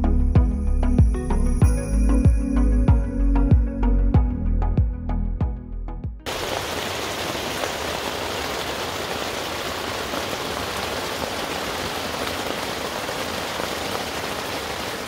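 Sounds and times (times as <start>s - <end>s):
heavy rain on a tent: 6.3s - 15.0s.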